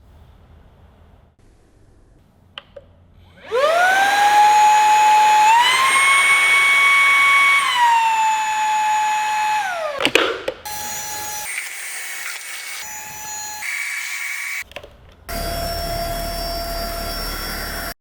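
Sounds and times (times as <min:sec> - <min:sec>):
vacuum motor whine: 0:03.4 - 0:10.0, 0:15.3 - 0:18.0.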